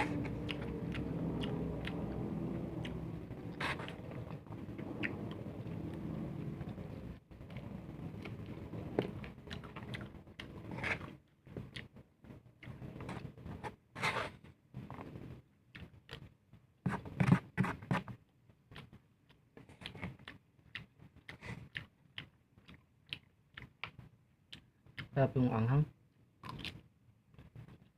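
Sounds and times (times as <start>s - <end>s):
low hum: 0.0s - 11.2s
person chewing food: 0.0s - 13.8s, 14.8s - 17.1s, 18.2s - 25.2s, 26.4s - 27.9s.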